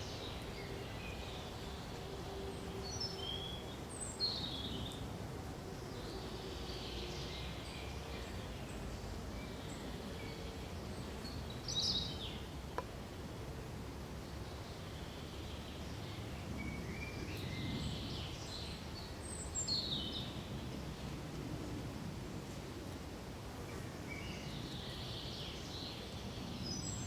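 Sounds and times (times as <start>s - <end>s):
low background noise: 0.0s - 27.0s.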